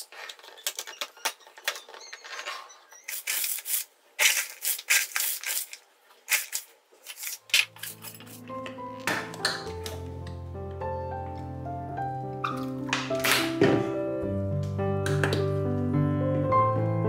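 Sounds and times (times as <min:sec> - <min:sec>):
packaging crinkling: 0:03.1 - 0:10.1.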